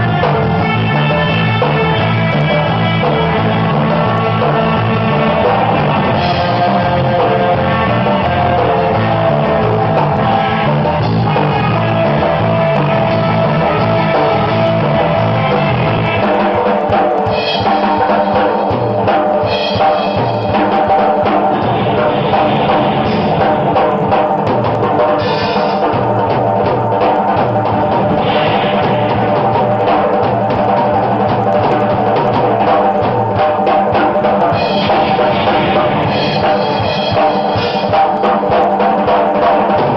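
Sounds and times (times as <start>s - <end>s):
surf rock band playing: 0.0s - 39.9s
cymbal crashes: 16.1s - 39.9s.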